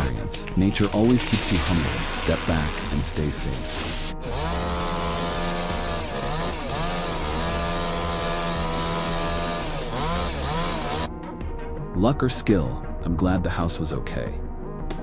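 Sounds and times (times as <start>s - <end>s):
chainsaw running at high revs: 4.2s - 11.1s.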